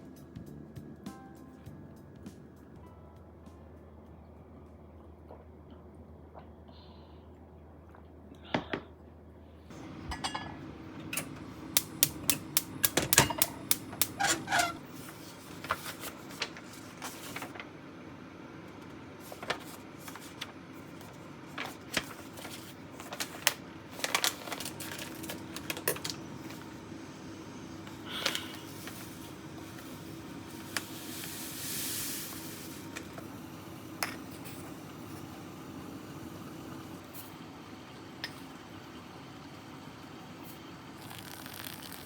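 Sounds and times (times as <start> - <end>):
dishes and cutlery clattering: 10.1 - 10.6.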